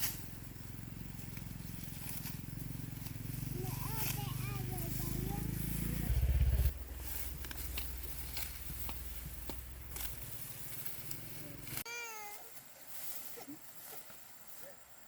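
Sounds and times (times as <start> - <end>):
small engine humming: 0.0 - 11.8.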